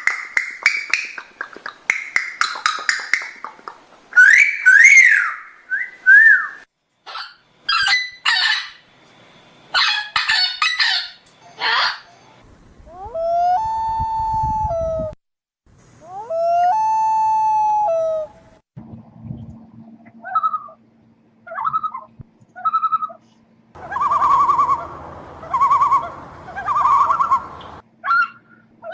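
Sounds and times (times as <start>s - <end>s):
harsh raspy bird calls: 0.0s - 5.6s, 6.2s - 8.9s, 9.7s - 12.1s, 23.8s - 28.9s
bird whistled notes: 4.2s - 8.9s, 23.8s - 28.5s.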